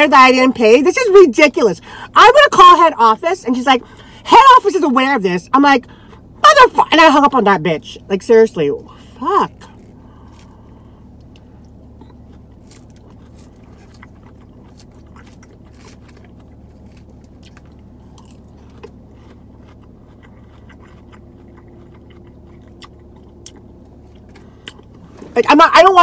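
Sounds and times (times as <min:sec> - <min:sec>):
steady low hum: 0:00.0 - 0:26.0
person crunching salad: 0:09.7 - 0:25.0.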